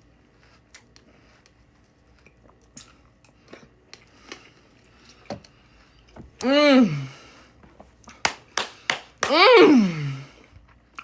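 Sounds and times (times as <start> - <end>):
person chewing crunchy cereal: 0.2 - 6.1.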